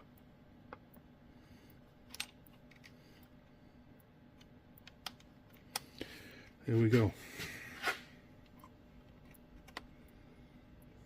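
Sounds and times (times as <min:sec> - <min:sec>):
small parts clicking: 0:02.0 - 0:03.3.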